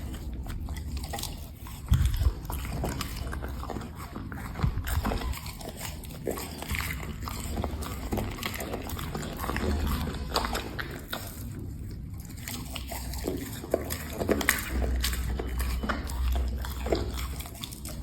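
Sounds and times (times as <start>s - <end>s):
dog chewing food: 0.0s - 18.0s.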